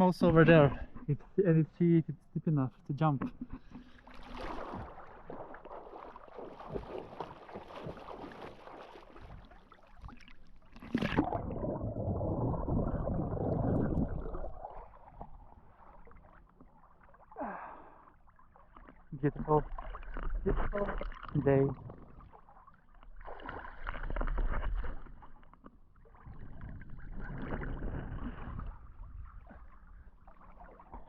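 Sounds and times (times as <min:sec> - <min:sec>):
plunge into water: 0:03.2 - 0:31.0
muffled underwater rushing: 0:03.5 - 0:18.0
water splashing around swimmer: 0:03.6 - 0:31.0.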